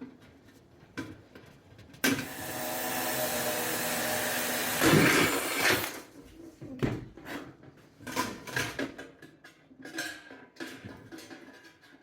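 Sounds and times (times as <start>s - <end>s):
power drill boring a hole: 2.1s - 6.0s.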